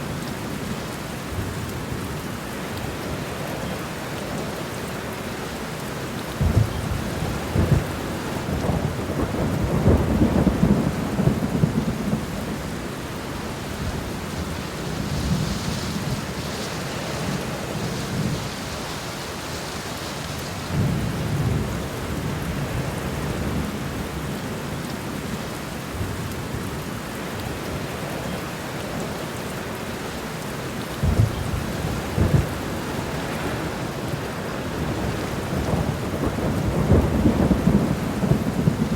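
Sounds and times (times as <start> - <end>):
steady rain falling: 0.0 - 38.9
rolling thunder: 6.4 - 12.9, 31.0 - 38.9.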